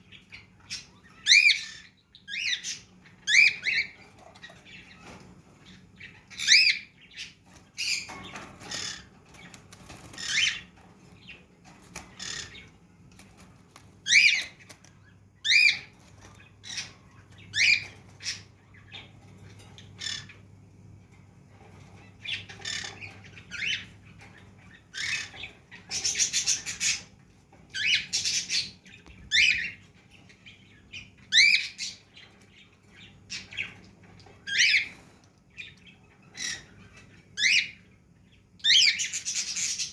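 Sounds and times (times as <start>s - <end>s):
birds squawking: 0.0s - 20.6s, 21.8s - 39.9s
rapid chattering bird calls: 0.0s - 20.6s, 21.6s - 39.9s.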